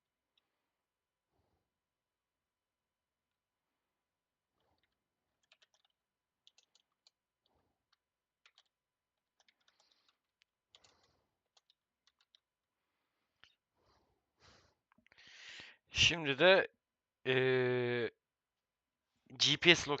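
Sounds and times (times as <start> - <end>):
keyboard typing: 4.7 - 12.5.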